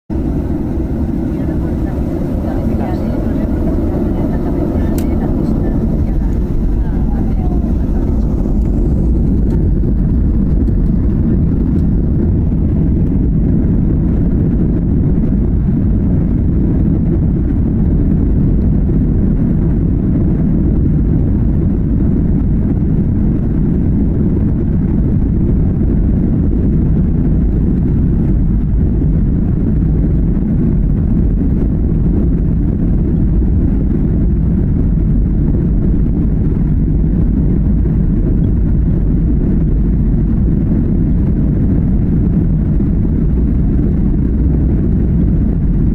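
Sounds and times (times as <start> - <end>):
jet engines low rumble: 0.0 - 45.9.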